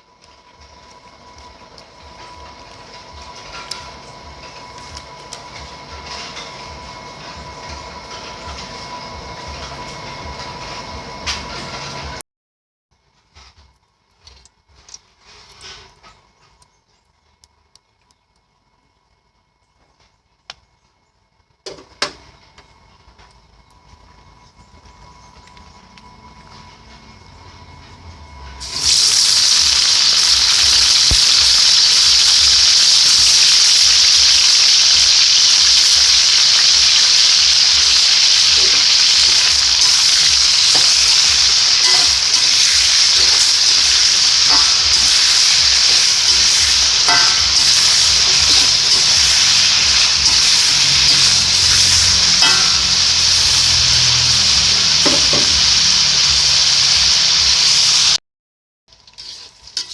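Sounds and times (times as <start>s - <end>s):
vegetables sizzling in hot oil: 28.6s - 58.2s, 58.9s - 59.9s.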